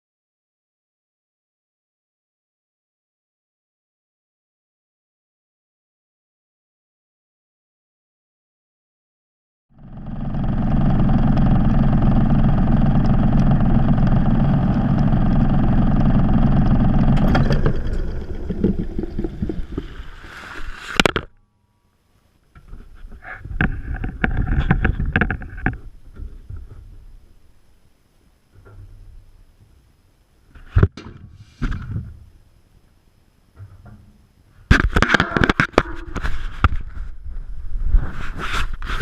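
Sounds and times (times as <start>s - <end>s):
washing machine hum and churning: 9.8s - 20.3s
irregular knocking and clattering: 22.6s - 27.2s.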